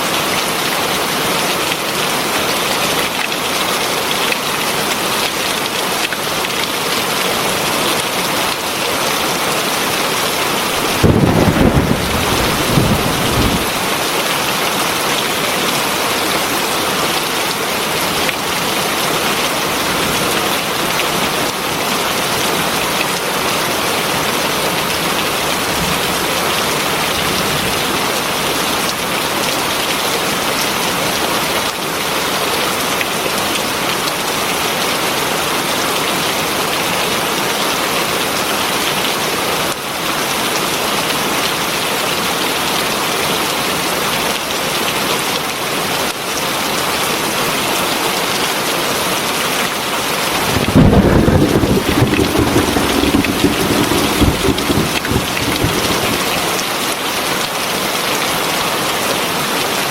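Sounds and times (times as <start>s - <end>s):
heavy rain falling: 0.0s - 30.6s, 50.2s - 57.4s.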